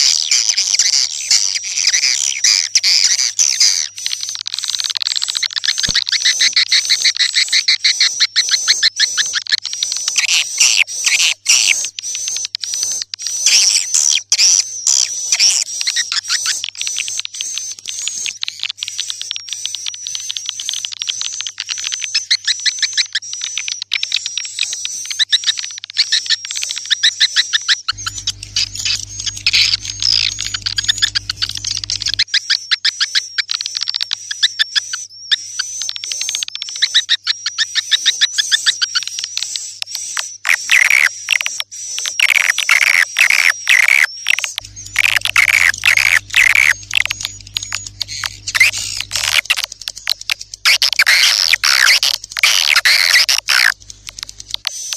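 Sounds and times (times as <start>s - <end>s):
bird chirping clicks: 0.0s - 54.9s
low electrical hum: 27.9s - 32.2s, 44.5s - 54.9s
swiftlets twittering and chirping: 27.9s - 32.4s, 40.0s - 54.9s
thin high whistle-like tone: 28.0s - 32.2s.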